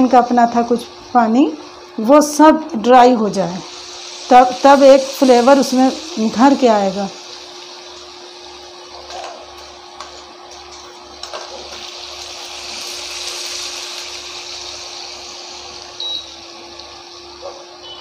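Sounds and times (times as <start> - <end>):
chicken sizzling in a frying pan: 0.0 - 18.0
short high beep: 16.0 - 16.3.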